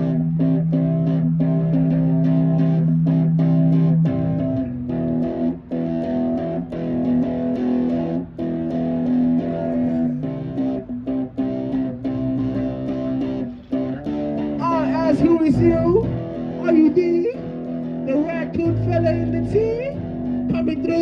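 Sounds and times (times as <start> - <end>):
low held note: 0.0 - 5.2
guitar playing chords: 0.0 - 21.0.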